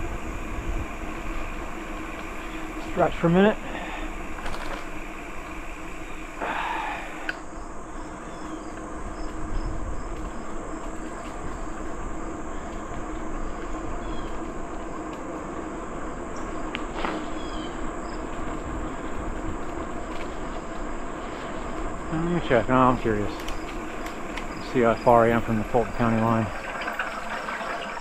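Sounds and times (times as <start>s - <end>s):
high insect drone: 0.0s - 28.0s
short insect chirps: 21.4s - 27.0s.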